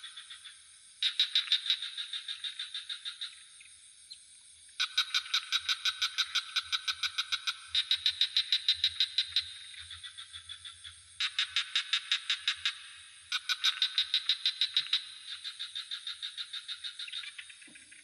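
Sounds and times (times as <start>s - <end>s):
crickets droning: 0.0s - 18.0s
frogs calling in pulsed trills: 0.0s - 18.0s.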